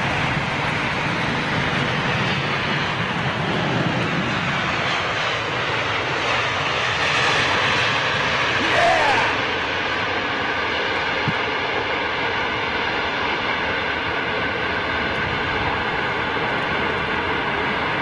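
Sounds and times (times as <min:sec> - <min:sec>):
jet engines rushing: 0:00.0 - 0:18.0.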